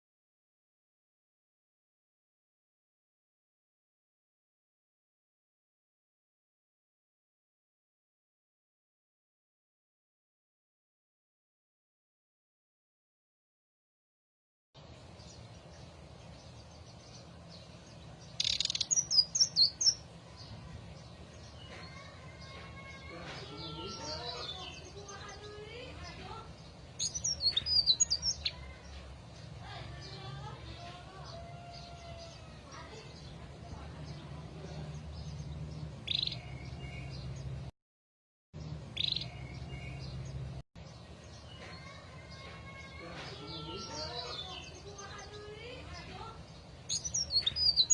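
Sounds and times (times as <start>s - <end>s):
bird singing: 14.8s - 37.6s, 38.6s - 47.9s
faint bird chirps: 18.3s - 20.6s.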